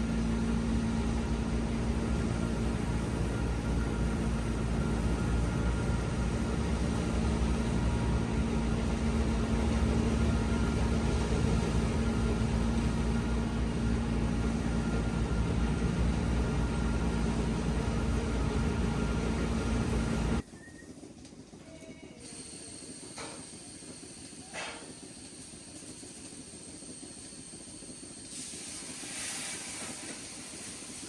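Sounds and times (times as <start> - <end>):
machine engine humming steadily: 0.0 - 20.4.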